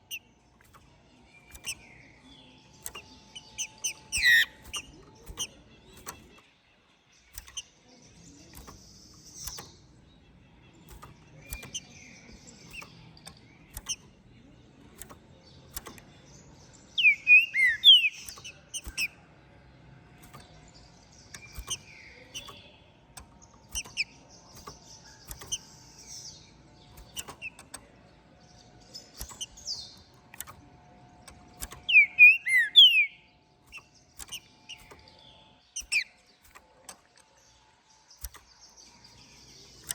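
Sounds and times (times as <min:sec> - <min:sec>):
bird whistling song: 0:00.0 - 0:06.5, 0:08.5 - 0:14.1, 0:16.7 - 0:19.2, 0:21.0 - 0:22.8, 0:23.7 - 0:27.7, 0:31.6 - 0:35.1, 0:35.7 - 0:36.6
faint clicks: 0:00.0 - 0:32.9, 0:33.5 - 0:39.9
soft bird chirps: 0:00.0 - 0:39.9.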